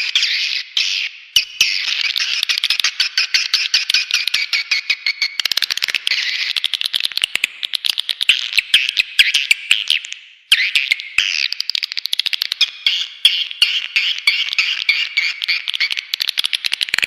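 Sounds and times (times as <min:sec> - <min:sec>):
rapid high bird chirps and twitters: 0:00.0 - 0:17.0
sharp clicks: 0:15.5 - 0:17.0.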